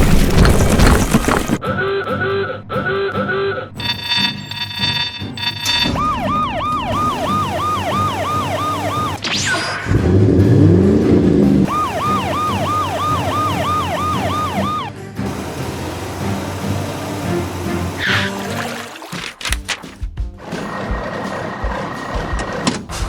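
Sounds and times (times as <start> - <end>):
background music: 1.6 - 23.0
cartoon police siren: 5.6 - 10.0, 11.7 - 15.0.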